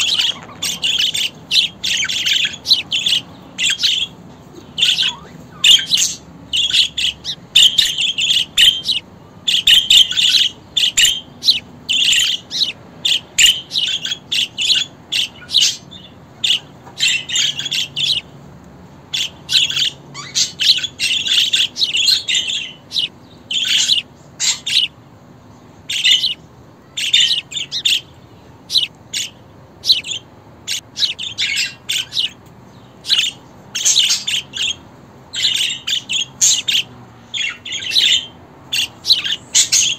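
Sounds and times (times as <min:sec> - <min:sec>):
budgerigars chirping: 0:00.0 - 0:18.4, 0:19.0 - 0:39.9.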